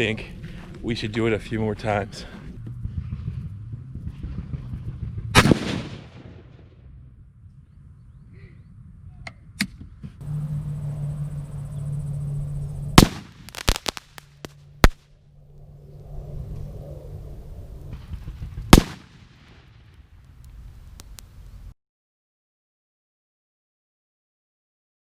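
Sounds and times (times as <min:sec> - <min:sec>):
fireworks exploding: 0:04.0 - 0:06.8, 0:12.9 - 0:15.0, 0:17.9 - 0:21.6
rifle shots: 0:05.3 - 0:06.8, 0:13.0 - 0:15.0, 0:18.7 - 0:19.7.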